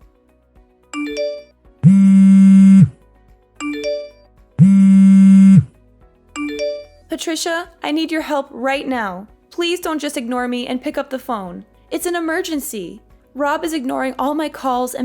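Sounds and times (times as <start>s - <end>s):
phone buzzing: 1.0s - 3.0s, 3.7s - 5.7s.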